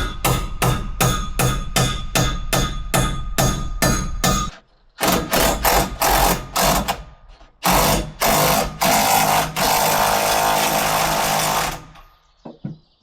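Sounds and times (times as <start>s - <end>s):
power tool driving a fastener: 5.0s - 12.1s.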